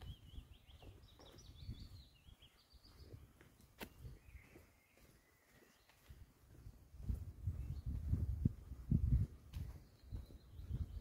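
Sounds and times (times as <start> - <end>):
footsteps on woodland path: 0.0 - 11.0
songbird singing: 0.0 - 11.0.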